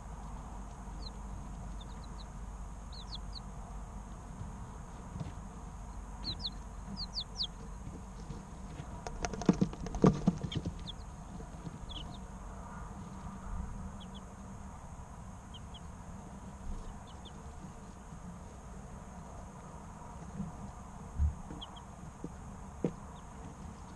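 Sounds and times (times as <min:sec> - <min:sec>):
chicks peeping: 0:00.0 - 0:23.9
low steady hum: 0:00.0 - 0:23.9
sharp taps and knocks: 0:09.0 - 0:10.9.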